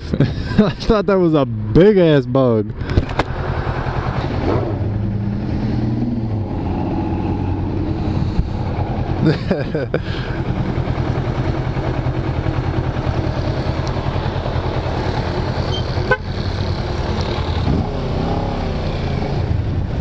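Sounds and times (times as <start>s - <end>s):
motorcycle engine running: 2.7s - 20.0s
wind rush over microphone: 6.0s - 9.1s.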